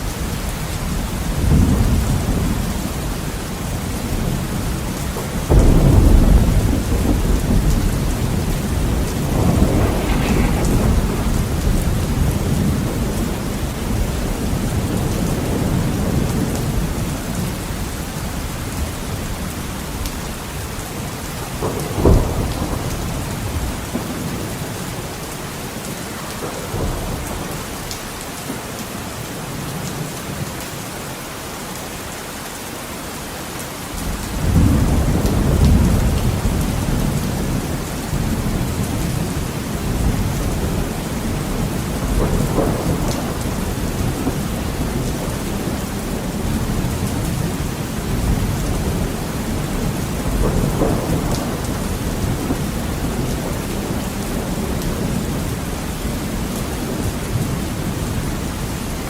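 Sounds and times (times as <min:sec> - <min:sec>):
heavy rain on a window: 0:00.0 - 0:59.0
thunder rumbling: 0:00.9 - 0:17.5, 0:21.0 - 0:25.1, 0:34.3 - 0:58.4.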